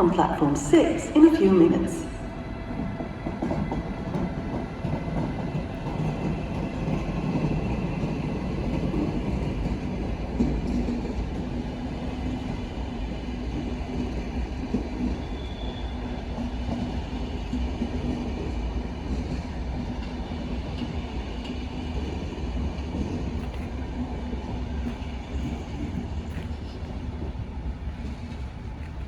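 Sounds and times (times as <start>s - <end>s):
train wheels rumbling on rail: 0.0s - 29.0s.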